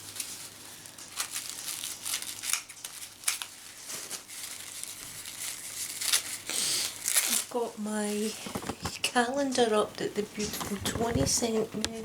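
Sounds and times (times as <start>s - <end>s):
packaging crinkling: 0.0s - 9.0s.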